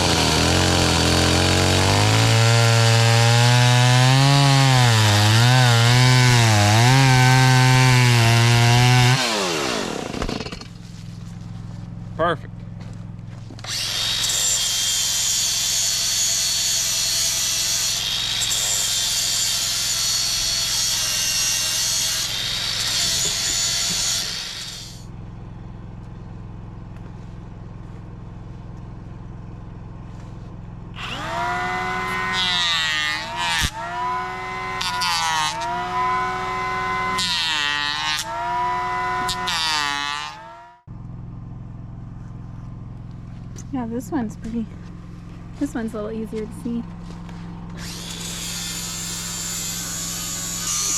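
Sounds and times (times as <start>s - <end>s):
chainsaw cutting wood: 0.0s - 10.8s, 13.6s - 25.1s, 31.0s - 40.9s, 47.7s - 50.9s
steady low hum: 25.0s - 31.8s, 40.8s - 50.6s.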